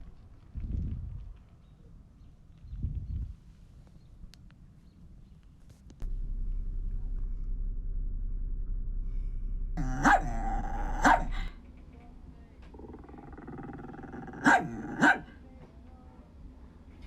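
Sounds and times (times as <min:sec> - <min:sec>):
low rumble: 0:06.0 - 0:14.4
dog barking: 0:09.8 - 0:11.5, 0:14.1 - 0:15.4.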